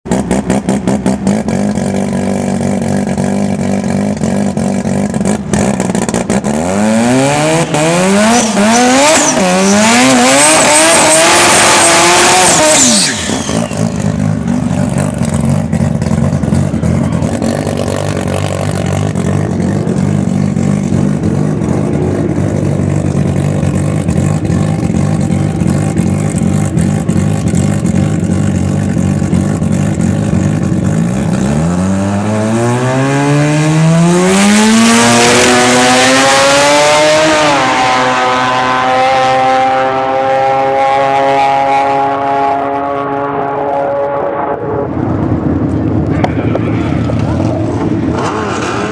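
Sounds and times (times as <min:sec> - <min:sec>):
drag car engine revving: 0:00.1 - 0:48.9.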